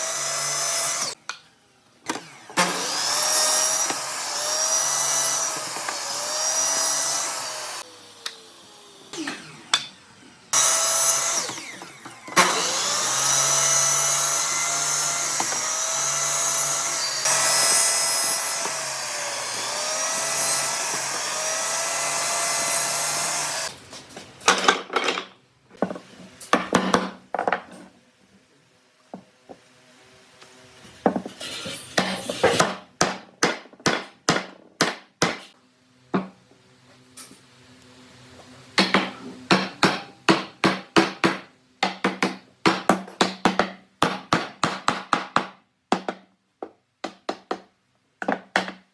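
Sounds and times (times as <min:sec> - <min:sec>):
power tool cutting wood: 0:00.0 - 0:01.2, 0:02.1 - 0:23.7.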